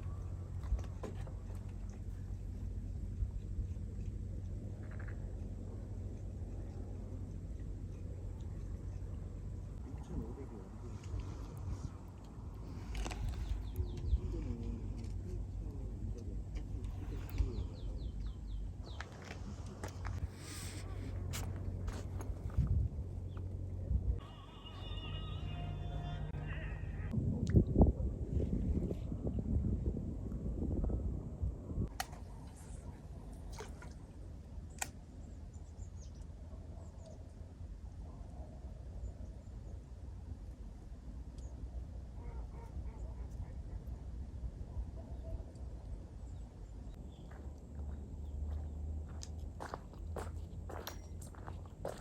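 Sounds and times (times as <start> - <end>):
low rumble: 0.0 - 36.5
small birds chirping: 12.6 - 22.0.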